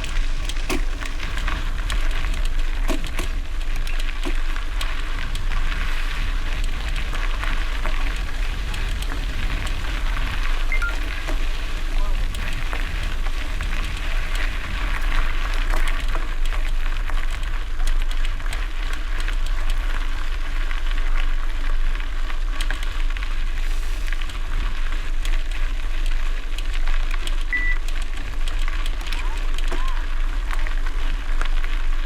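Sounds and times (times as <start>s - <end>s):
bicycle tyres crunching on gravel: 0.0s - 32.0s
wind rumble on microphone: 0.0s - 32.0s
high beep: 10.7s - 11.0s, 27.5s - 27.8s.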